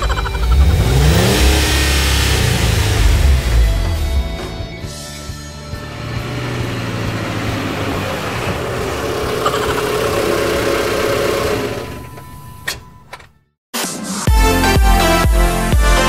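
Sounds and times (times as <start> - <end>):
vehicle engine running: 0.0 - 12.6.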